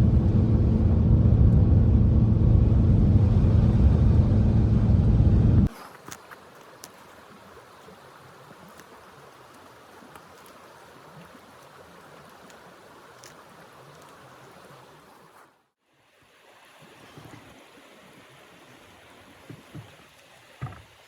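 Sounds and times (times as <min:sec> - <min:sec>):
loud low rumble: 0:00.0 - 0:05.7.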